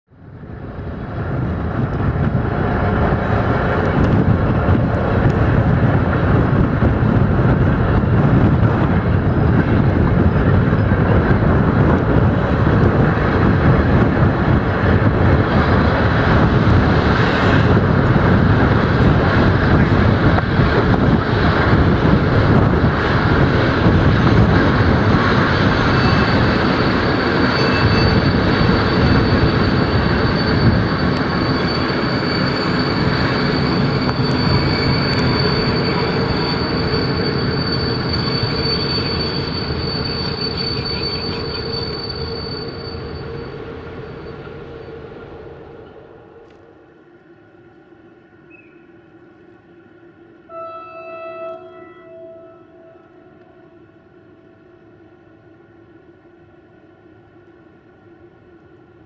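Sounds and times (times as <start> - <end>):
train wheels rumbling on rails: 0.1 - 59.0
faint high whine: 45.8 - 58.8.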